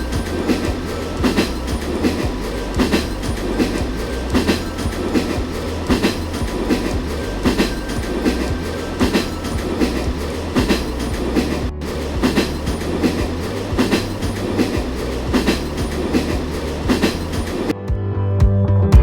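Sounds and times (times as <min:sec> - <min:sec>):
wheels clacking over rail joints: 0:00.0 - 0:17.7
train rumbling on track: 0:00.0 - 0:17.8.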